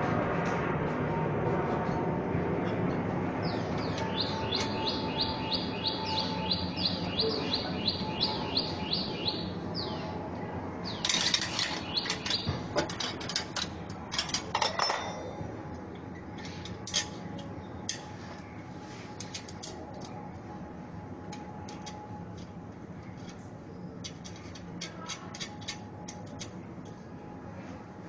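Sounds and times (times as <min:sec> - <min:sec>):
steady background hum: 0:00.0 - 0:28.0
small bird chirping: 0:03.5 - 0:10.1
clicks knocks and rustling clatter: 0:11.0 - 0:15.0.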